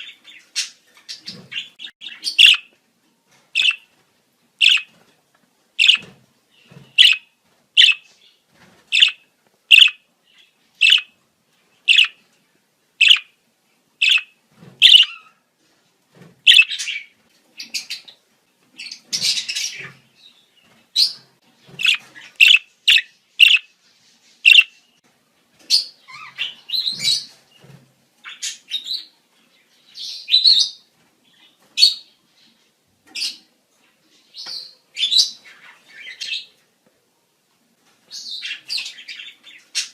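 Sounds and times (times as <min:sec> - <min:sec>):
budgerigars chirping and chattering: 0:00.0 - 0:02.7, 0:03.6 - 0:03.9, 0:04.6 - 0:04.9, 0:05.8 - 0:08.2, 0:08.9 - 0:11.2, 0:11.8 - 0:12.2, 0:13.0 - 0:13.3, 0:14.0 - 0:15.4, 0:16.5 - 0:18.2, 0:18.8 - 0:20.4, 0:21.0 - 0:23.8, 0:24.4 - 0:24.8, 0:25.7 - 0:27.4, 0:28.2 - 0:29.2, 0:38.1 - 0:39.9.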